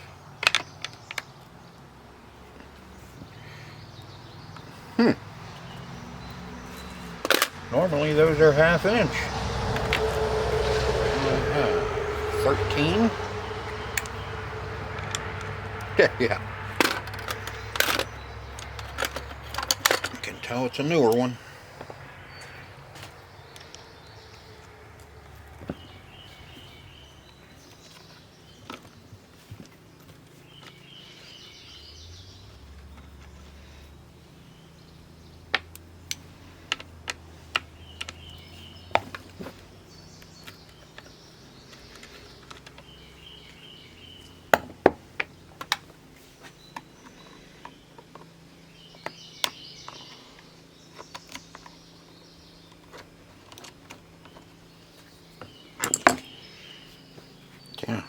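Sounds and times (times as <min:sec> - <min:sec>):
wrench and metal parts clanking: 0:16.7 - 0:21.2, 0:55.8 - 0:56.4.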